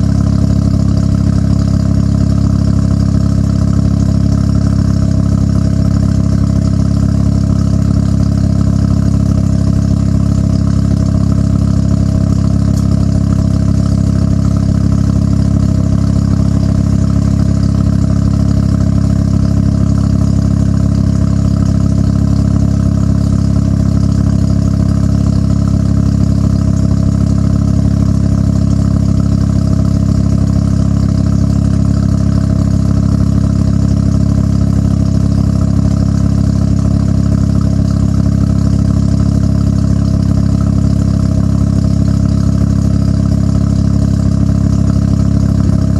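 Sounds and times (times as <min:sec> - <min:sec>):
rotary car engine idling: 0:00.0 - 0:45.9.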